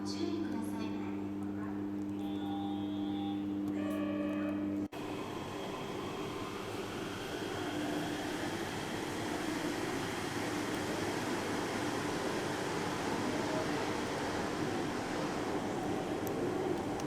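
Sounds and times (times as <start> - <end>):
electronic hum: 1.3 - 4.9
rubber-tyred train running: 5.0 - 17.0.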